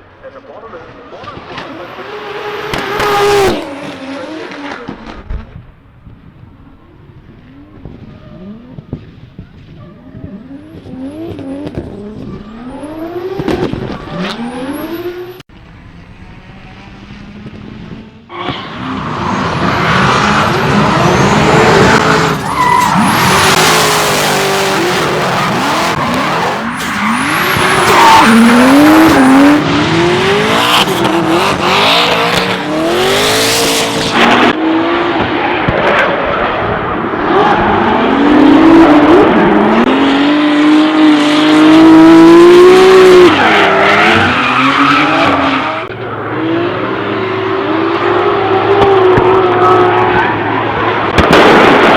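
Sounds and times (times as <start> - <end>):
car engine revving: 0.4 - 5.6, 7.3 - 15.5, 16.2 - 51.9
tyres squealing: 18.3 - 29.6.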